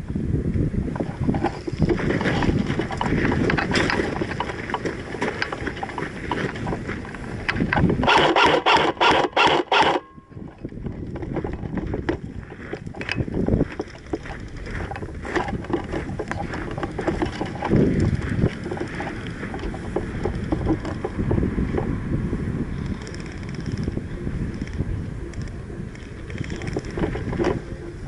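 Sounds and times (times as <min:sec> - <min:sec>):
wind buffeting microphone: 0:00.0 - 0:28.0
rustling handling noise: 0:10.5 - 0:21.2.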